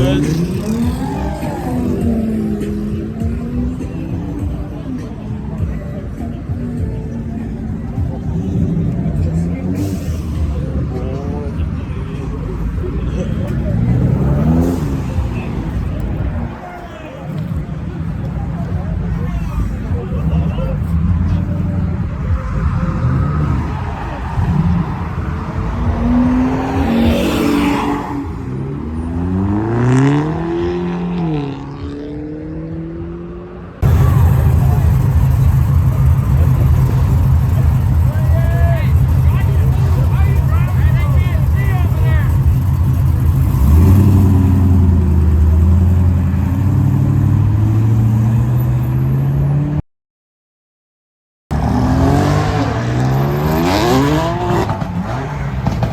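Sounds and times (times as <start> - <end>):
car engine revving: 0.0 - 4.3, 7.2 - 16.6, 19.6 - 49.8, 51.5 - 55.9
car engine running: 33.8 - 47.8.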